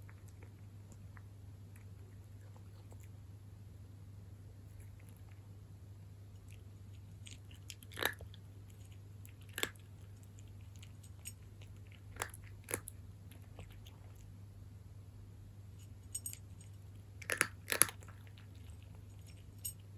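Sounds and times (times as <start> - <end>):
cat crunching dry kibble: 4.6 - 5.5, 6.3 - 14.4, 15.8 - 19.9.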